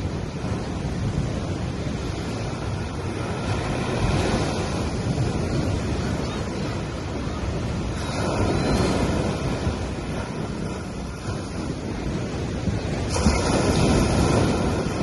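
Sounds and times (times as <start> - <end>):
sea waves washing on sand: 0.0 - 15.0.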